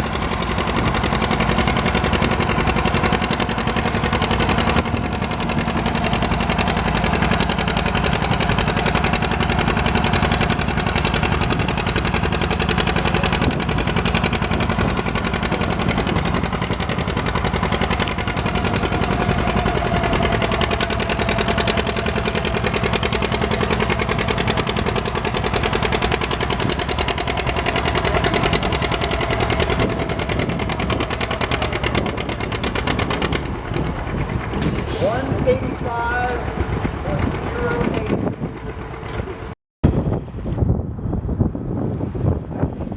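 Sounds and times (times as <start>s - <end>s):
tractor engine running: 0.0s - 42.9s.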